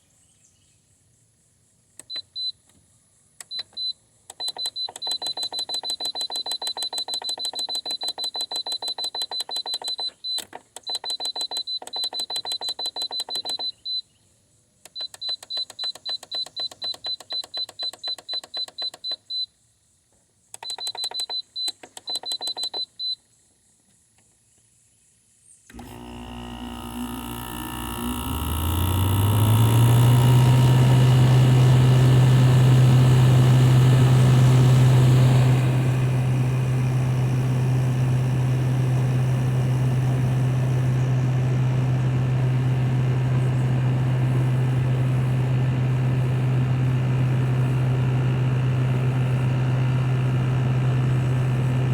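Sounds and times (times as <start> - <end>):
air conditioner running drone: 25.9 - 51.9.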